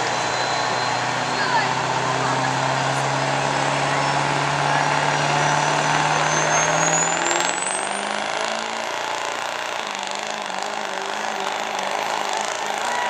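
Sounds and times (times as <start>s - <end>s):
turbo whistle: 0.0s - 1.8s
diesel engine under throttle: 0.0s - 13.0s.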